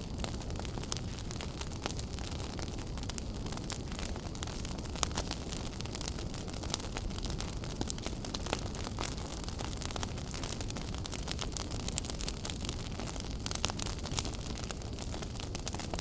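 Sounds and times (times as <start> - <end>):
fire crackling and popping: 0.0 - 16.0
wood fire roaring: 0.0 - 16.0.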